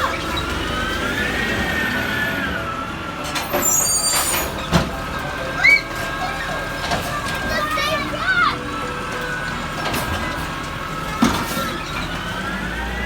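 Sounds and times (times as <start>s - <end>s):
garbage truck running: 0.0s - 13.0s
brief high squeals: 3.5s - 4.8s.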